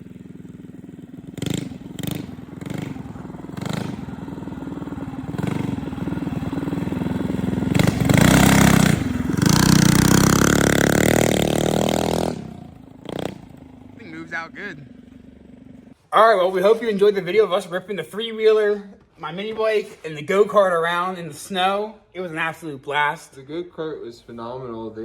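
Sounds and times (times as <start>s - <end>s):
mini bike engine revving: 0.0s - 16.0s.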